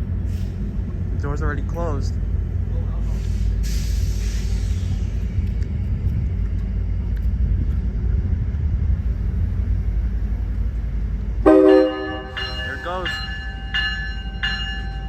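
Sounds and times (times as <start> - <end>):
diesel locomotive rumbling: 0.0 - 15.0
train horn blast: 11.4 - 12.6.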